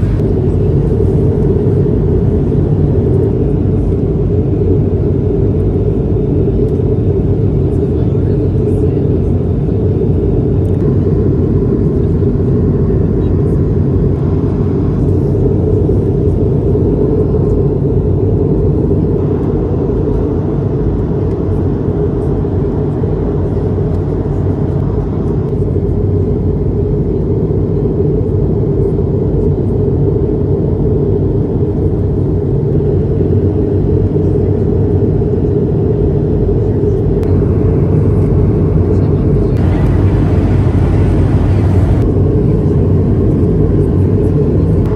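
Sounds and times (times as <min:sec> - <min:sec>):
airflow over fuselage: 0:00.0 - 0:44.9
jet engines droning: 0:00.0 - 0:44.9.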